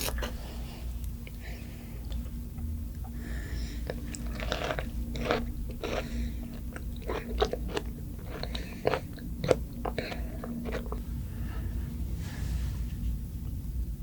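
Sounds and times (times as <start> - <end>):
crunchy chewing of food: 0.0 - 1.4, 3.0 - 11.8.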